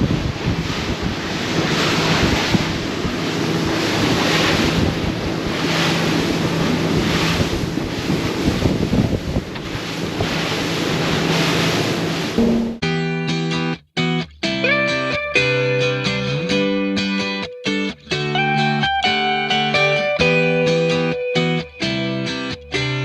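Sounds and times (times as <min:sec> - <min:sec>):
wind buffeting microphone: 0:00.0 - 0:12.1
water rushing and spray: 0:00.0 - 0:12.8
boat engine hum: 0:00.0 - 0:13.0.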